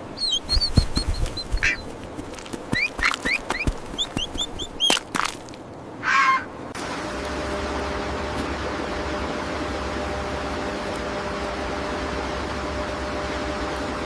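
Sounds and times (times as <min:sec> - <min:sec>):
duckling peeping: 0:00.0 - 0:02.0, 0:02.7 - 0:05.1.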